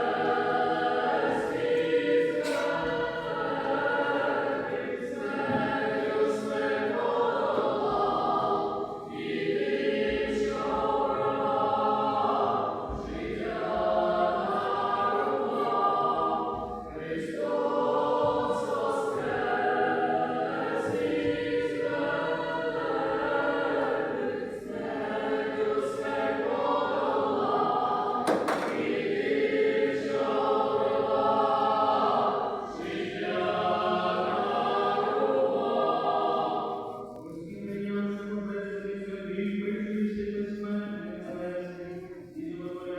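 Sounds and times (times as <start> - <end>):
choir singing a chant: 0.0 - 42.9.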